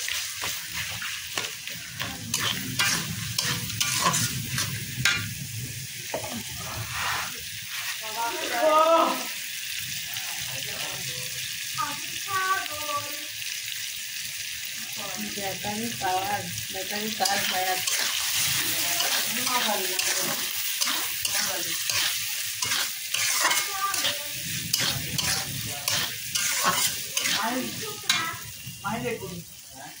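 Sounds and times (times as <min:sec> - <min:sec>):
metal spatula scraping pan: 0:00.0 - 0:05.3, 0:17.1 - 0:28.4
fish roe sizzling in oil: 0:00.0 - 0:30.0.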